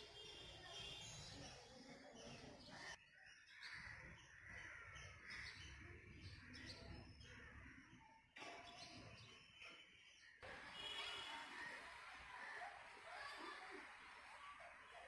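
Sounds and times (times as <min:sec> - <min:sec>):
birds calling: 0:02.2 - 0:12.9.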